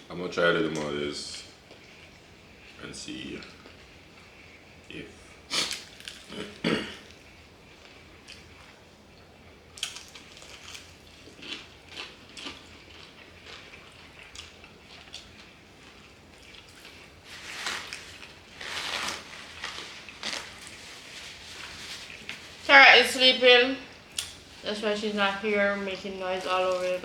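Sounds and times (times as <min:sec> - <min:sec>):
crunchy bites and wet chewing: 0:05.6 - 0:06.6, 0:09.7 - 0:22.4.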